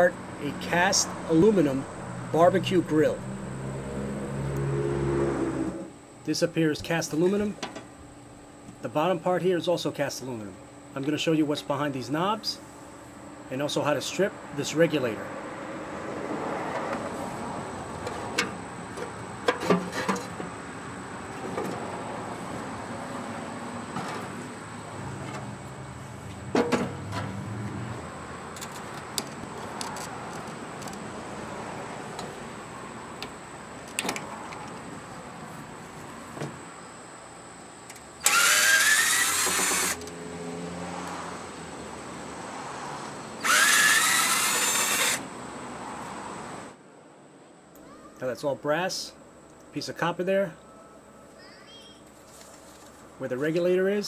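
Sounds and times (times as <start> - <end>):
metal grill parts clanking: 18.0 - 20.6, 26.5 - 27.4
power drill spinning up: 38.2 - 40.1, 43.4 - 45.2.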